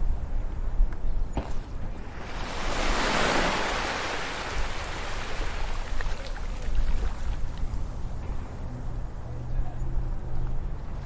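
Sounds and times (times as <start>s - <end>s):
ocean wave breaking on beach: 2.0s - 7.0s.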